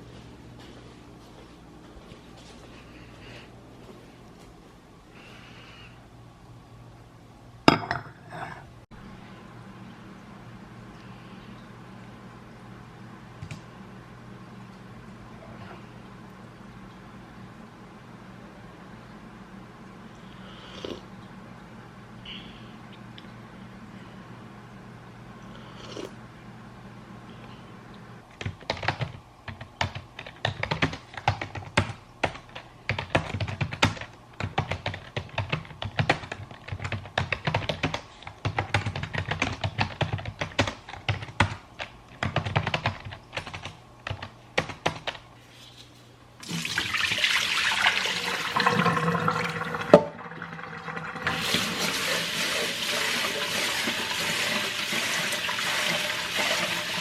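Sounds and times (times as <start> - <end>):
keyboard typing: 28.4 - 45.2.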